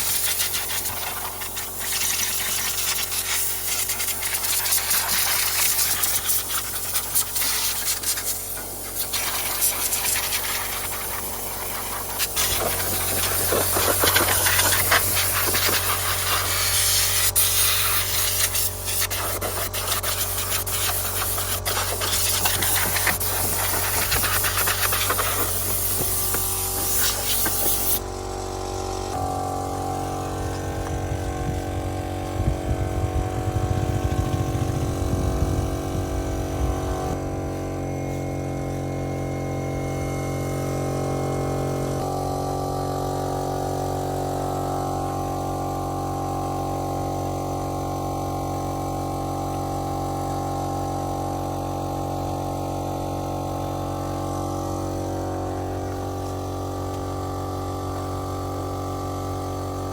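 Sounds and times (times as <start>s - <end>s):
steam cleaner jet hissing: 0.0s - 28.0s
low machine hum: 18.7s - 59.9s.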